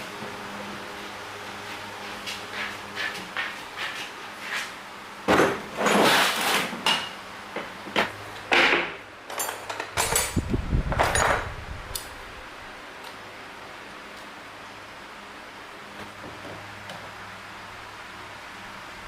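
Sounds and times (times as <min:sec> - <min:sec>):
metal tools clattering: 0:09.3 - 0:10.4, 0:11.0 - 0:11.5.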